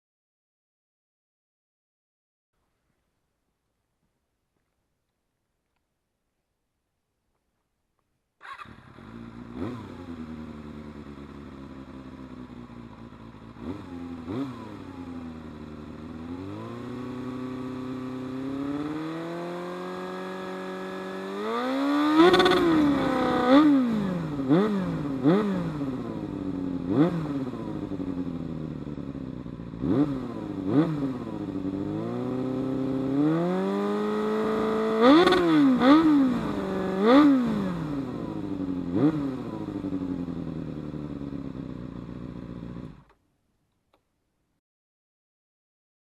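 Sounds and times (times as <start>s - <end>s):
motorcycle engine idling and revving: 8.4s - 43.2s.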